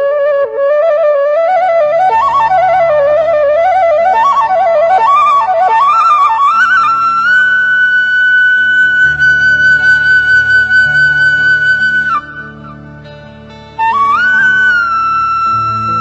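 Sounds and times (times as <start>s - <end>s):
flute melody: 0.0s - 16.0s.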